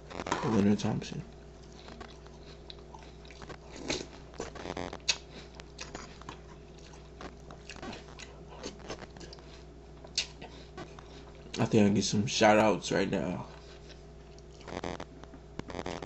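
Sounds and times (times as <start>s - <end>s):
person chewing crunchy cereal: 1.6s - 11.6s, 13.5s - 15.0s.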